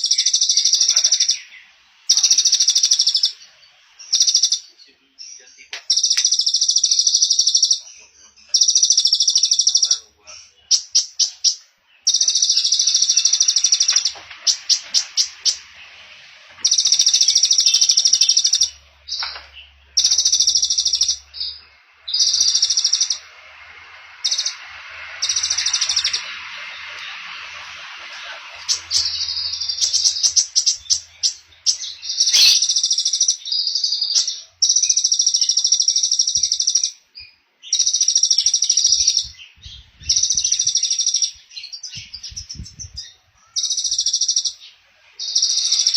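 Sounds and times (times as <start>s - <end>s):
songbird buzzy trills: 0.0s - 45.9s
bird ticking notes: 16.6s - 23.4s, 24.2s - 27.2s, 28.5s - 33.4s.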